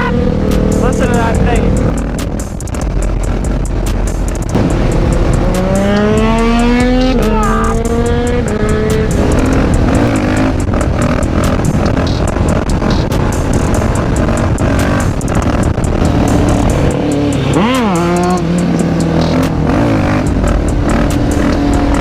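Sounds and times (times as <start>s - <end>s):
motorcycle engine accelerating: 0.0s - 22.0s
wind rush on microphone: 1.2s - 17.7s.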